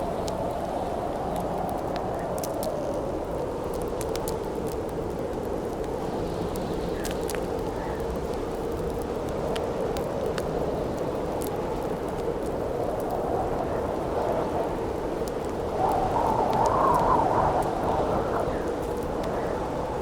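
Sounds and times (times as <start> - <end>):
campfire crackling and popping: 0.0 - 20.0
howling wind: 0.0 - 20.0.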